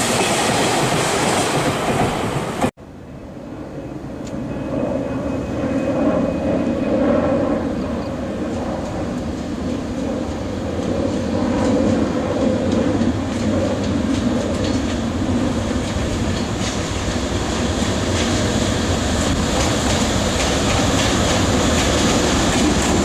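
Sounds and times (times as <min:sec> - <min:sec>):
freight train rolling rumble: 0:00.0 - 0:02.8, 0:06.3 - 0:23.0
wheels clicking over rail joints: 0:18.0 - 0:23.0.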